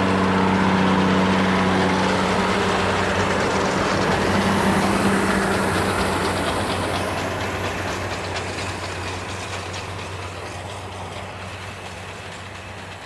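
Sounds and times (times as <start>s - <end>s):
tractor engine drone: 0.0s - 13.0s.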